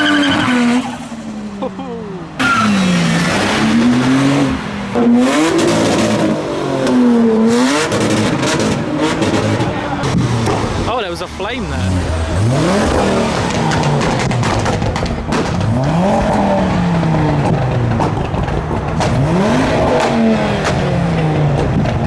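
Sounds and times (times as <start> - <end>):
car engine revving: 2.3 - 22.0
exhaust pops and bangs: 7.8 - 22.0.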